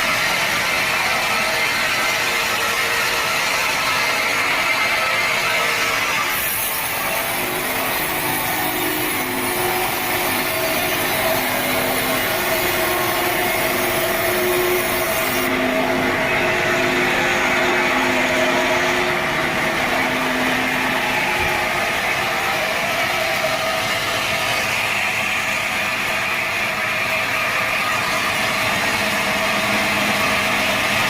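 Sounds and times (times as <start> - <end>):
saw cutting through log: 0.0 - 31.0
steady hum: 6.0 - 27.3.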